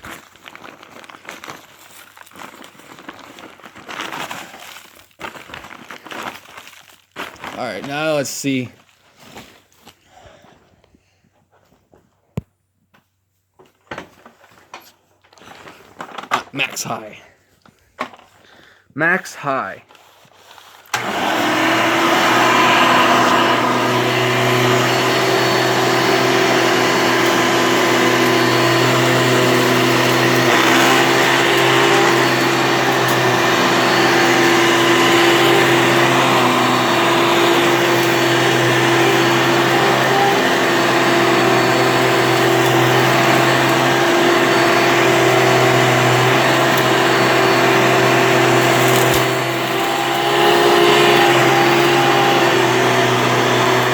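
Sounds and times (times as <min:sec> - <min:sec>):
vacuum cleaner motor humming: 0:20.9 - 0:53.9.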